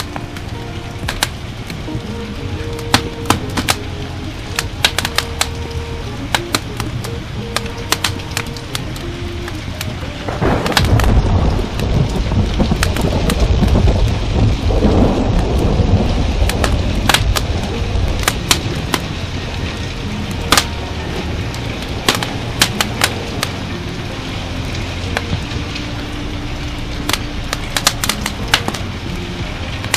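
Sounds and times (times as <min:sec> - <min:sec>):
steady rain: 0:00.0 - 0:29.9
wood fire crackling: 0:00.0 - 0:29.9
rolling thunder: 0:10.2 - 0:19.6.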